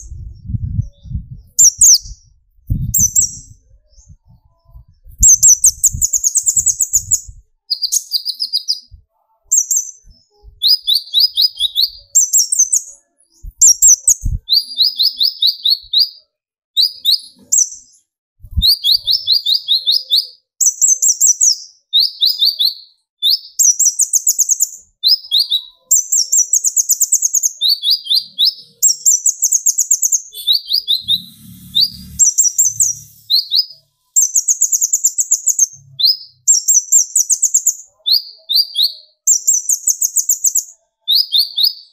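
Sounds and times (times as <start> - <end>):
sunbird singing rapid trills: 24.0 - 41.9.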